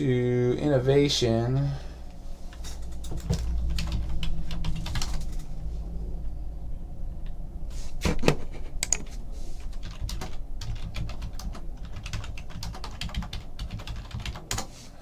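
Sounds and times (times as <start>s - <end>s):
typing on a keyboard: 2.9s - 5.5s, 8.3s - 14.7s.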